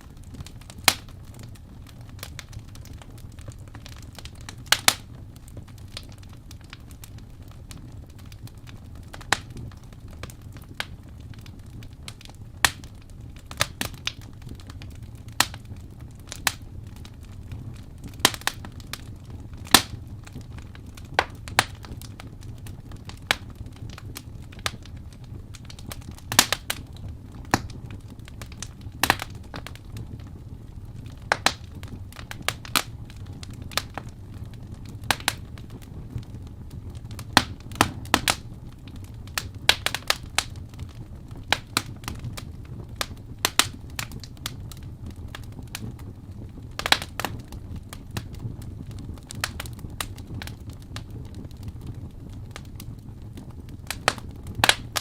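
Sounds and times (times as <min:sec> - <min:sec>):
rumble of flames: 0:00.0 - 0:55.0
logs snapping and popping: 0:04.7 - 0:05.0, 0:19.6 - 0:20.4, 0:25.7 - 0:26.8, 0:28.5 - 0:29.8, 0:31.1 - 0:31.6, 0:35.1 - 0:35.4, 0:37.1 - 0:38.4, 0:46.8 - 0:47.3, 0:54.1 - 0:55.0.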